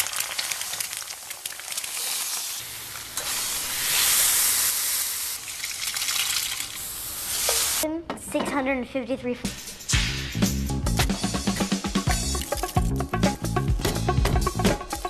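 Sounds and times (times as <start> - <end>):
bacon and potatoes sizzling: 0.0 - 5.8, 6.4 - 7.8.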